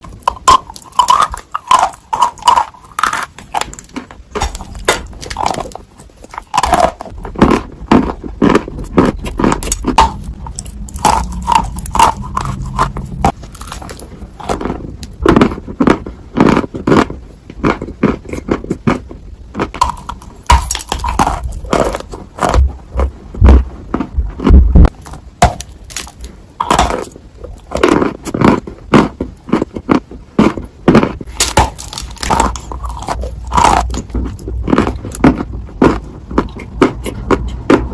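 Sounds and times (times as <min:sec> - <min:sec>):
crunching dry clay: 0:00.0 - 0:37.9.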